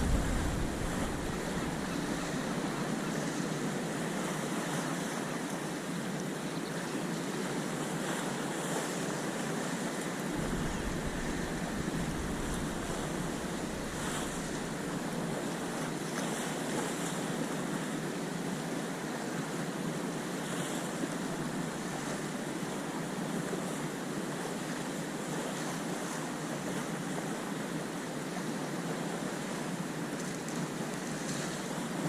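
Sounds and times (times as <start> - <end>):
wind buffeting microphone: 0.0 - 3.2, 10.3 - 15.6
sea waves washing in: 0.0 - 5.5, 7.9 - 18.0.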